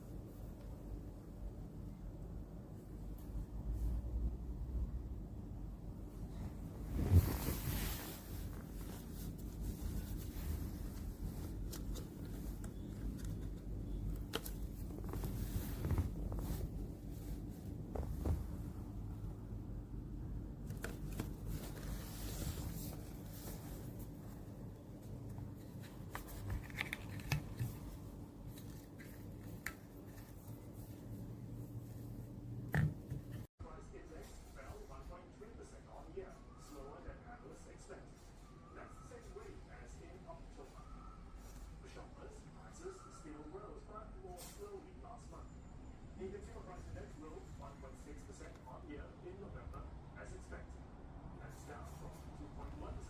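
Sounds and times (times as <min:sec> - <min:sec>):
steady low hum: 0:00.0 - 0:44.3
rustling and scraping: 0:06.5 - 0:19.2, 0:20.5 - 0:33.5.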